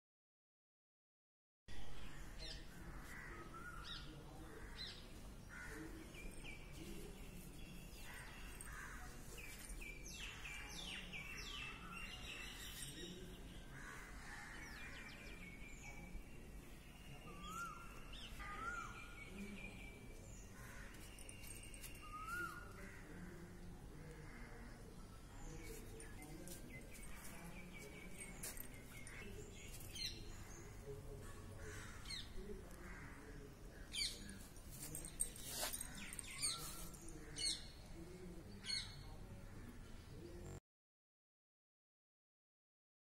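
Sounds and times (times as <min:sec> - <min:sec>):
birds chirping and singing: 0:02.1 - 0:23.1, 0:25.0 - 0:32.8, 0:33.4 - 0:39.2.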